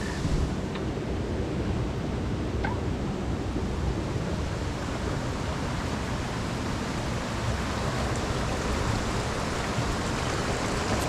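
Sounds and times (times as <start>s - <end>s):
creek flowing over rocks: 4.5s - 11.0s.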